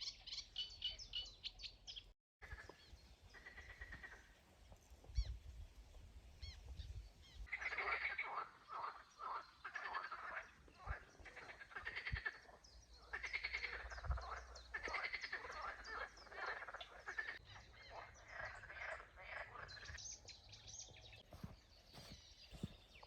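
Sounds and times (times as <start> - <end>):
frogs croaking: 7.4 - 20.0.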